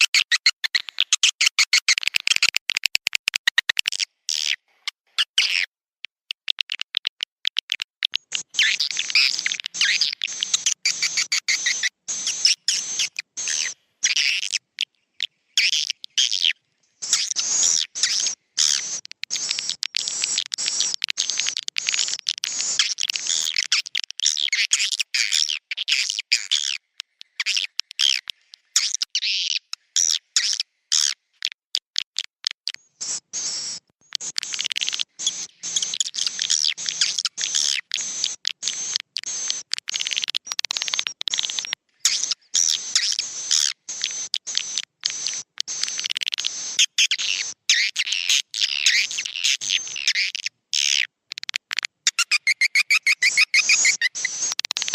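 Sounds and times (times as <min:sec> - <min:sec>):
swiftlets twittering: 0:08.2 - 0:14.6, 0:17.0 - 0:23.9, 0:33.0 - 0:50.9, 0:52.1 - 0:54.9.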